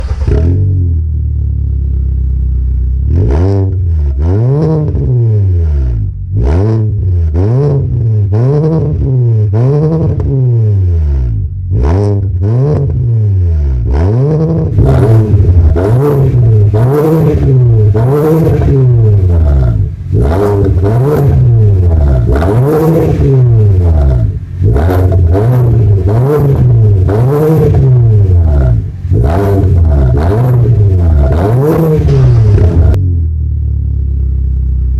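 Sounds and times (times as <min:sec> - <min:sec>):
car engine idling: 0:00.0 - 0:03.2, 0:14.4 - 0:34.9
engine revving blips: 0:03.1 - 0:33.3.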